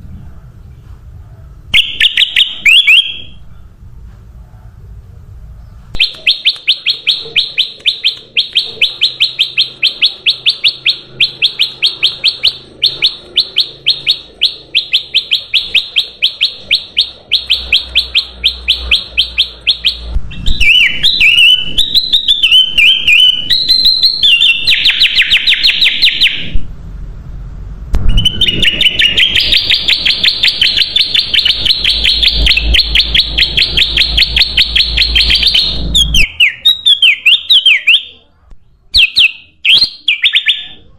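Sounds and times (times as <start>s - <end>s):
bird chirping rapidly: 1.8s - 3.4s, 5.6s - 26.6s, 28.0s - 40.8s
bird warbling: 6.0s - 26.5s.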